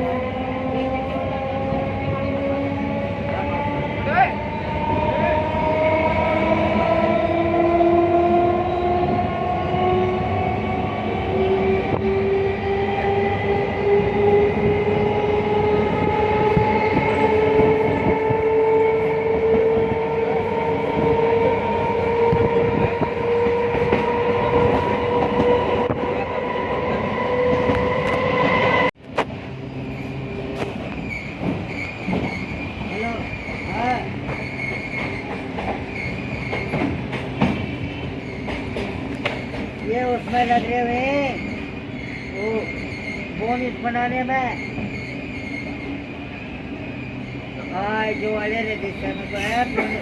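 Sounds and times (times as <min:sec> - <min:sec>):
train whine rising in pitch: 0:00.0 - 0:32.2
train rumbling on rails: 0:00.0 - 0:50.0.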